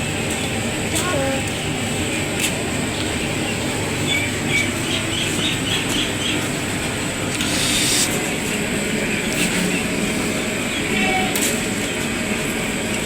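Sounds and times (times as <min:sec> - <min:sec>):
steady rumbling background: 0:00.0 - 0:11.0
small birds chirping: 0:03.3 - 0:06.6.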